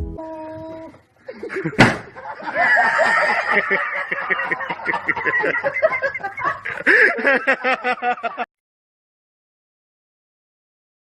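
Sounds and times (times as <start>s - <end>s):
person laughing: 1.3s - 8.5s.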